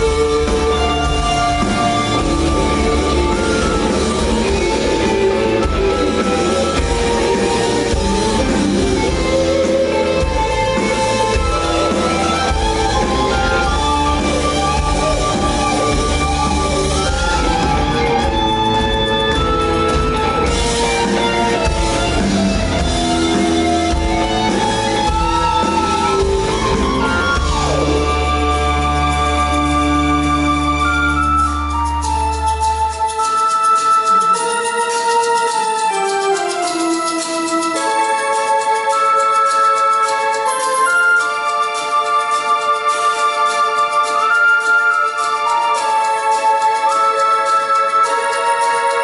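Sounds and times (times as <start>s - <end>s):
bass line: 0.0s - 33.1s
drums: 0.0s - 49.0s
guitar: 0.0s - 49.0s
live rock band playing: 0.0s - 49.0s.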